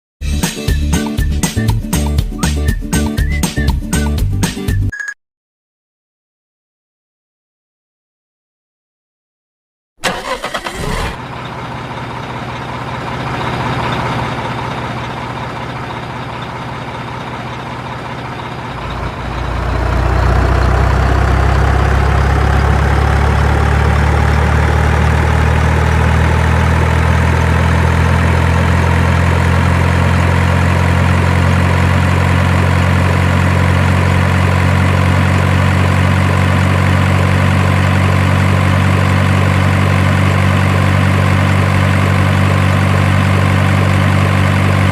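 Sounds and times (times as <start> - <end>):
heavy truck engine idling: 10.0 - 44.9.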